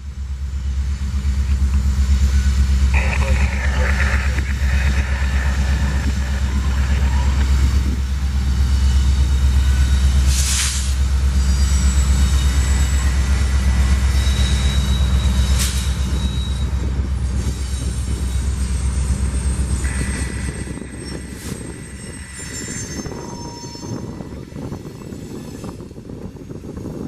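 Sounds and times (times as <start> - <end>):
freight train rumbling: 0.0 - 27.0
wheel flanges squealing: 11.4 - 25.8.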